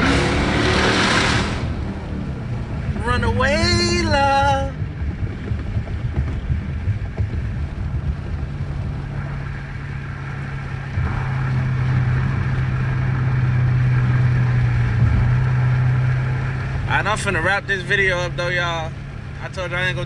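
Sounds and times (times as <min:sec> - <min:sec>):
car engine droning in cabin: 0:00.0 - 0:20.0.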